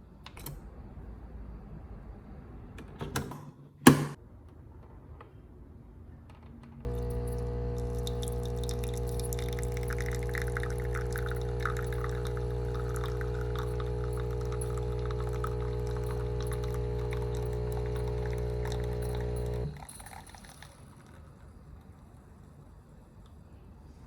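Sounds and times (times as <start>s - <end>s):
coffee machine pump humming: 6.9s - 20.7s
coffee streaming into cup: 6.9s - 21.5s.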